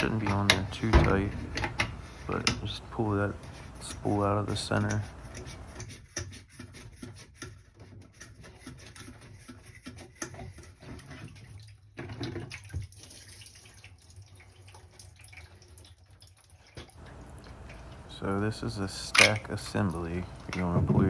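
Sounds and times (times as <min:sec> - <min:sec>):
plastic parts clicking and scraping: 0:00.0 - 0:11.0, 0:18.8 - 0:21.0
water dripping and trickling: 0:00.0 - 0:21.0.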